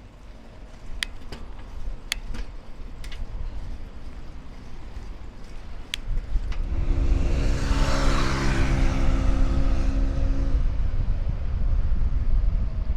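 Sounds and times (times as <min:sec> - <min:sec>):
tyre and air noise: 0:00.0 - 0:12.9
vehicle engine hum: 0:00.0 - 0:12.9
low rumble: 0:03.3 - 0:12.9.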